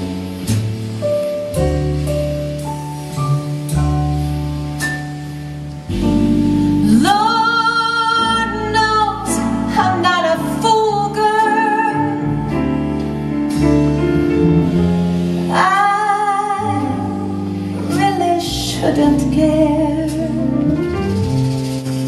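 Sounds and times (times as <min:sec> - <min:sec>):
woman singing jazz ballad: 0:05.9 - 0:13.0, 0:14.9 - 0:21.2.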